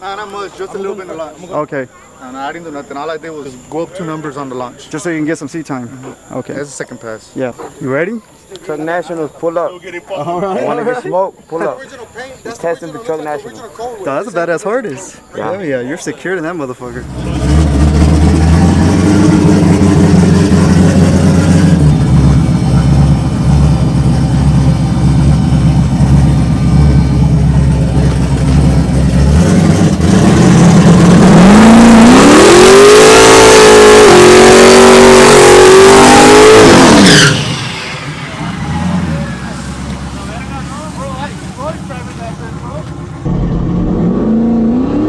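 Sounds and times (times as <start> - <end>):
truck engine revving: 16.9 - 45.0.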